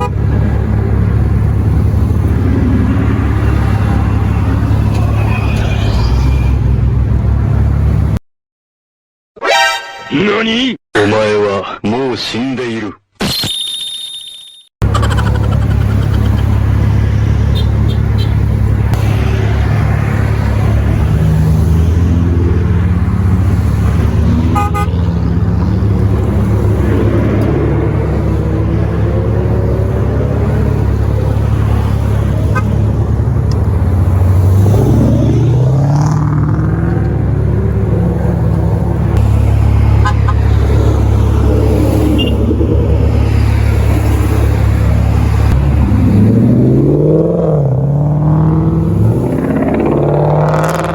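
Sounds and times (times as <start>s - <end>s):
car engine revving: 0.0s - 8.2s, 14.8s - 50.9s
muscle car engines droning: 0.0s - 8.2s, 14.8s - 50.9s
short car horn toots: 9.4s - 10.2s, 24.5s - 25.0s.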